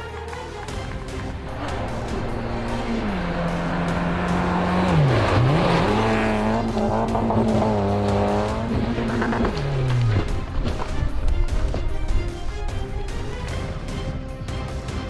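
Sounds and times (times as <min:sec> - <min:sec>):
rally car engine at high revs: 0:01.4 - 0:11.9.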